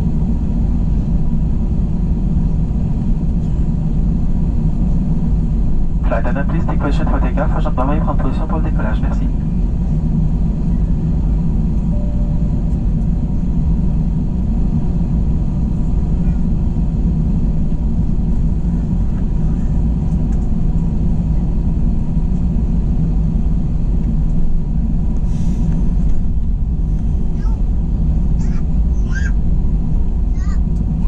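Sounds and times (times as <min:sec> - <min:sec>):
aircraft engines rumbling in cabin: 0:00.0 - 0:31.0
faint steady tones: 0:11.8 - 0:13.2.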